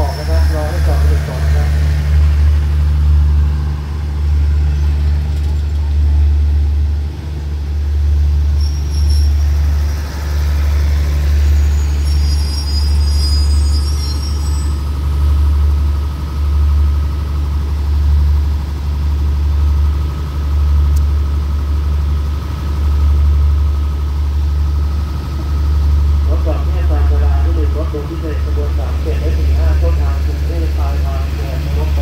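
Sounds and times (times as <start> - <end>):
train rumbling to a stop: 0.0 - 32.0
high brake squeals: 8.5 - 14.9.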